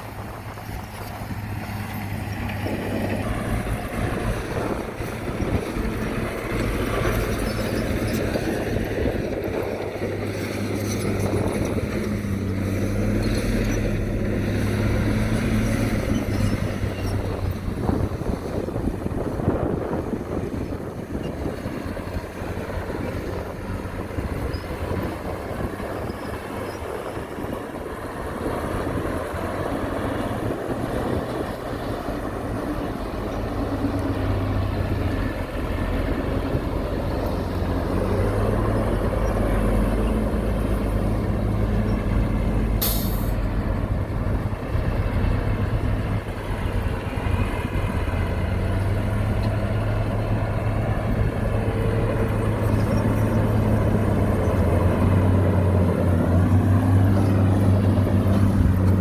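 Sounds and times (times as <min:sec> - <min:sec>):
diesel machinery drone: 0:00.0 - 0:59.0
short sharp hiss: 0:42.8 - 0:43.4.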